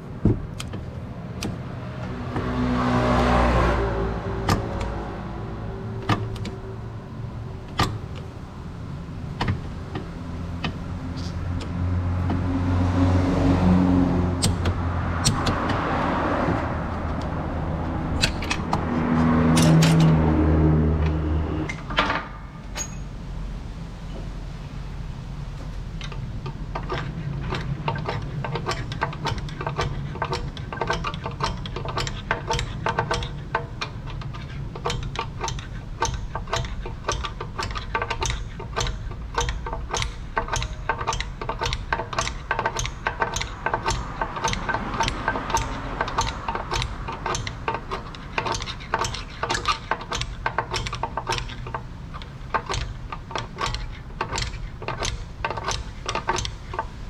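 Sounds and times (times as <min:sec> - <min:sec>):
low hum: 0:00.0 - 0:29.6
sharp mechanical clicks: 0:14.3 - 0:15.8, 0:16.6 - 0:20.2, 0:26.0 - 0:57.0.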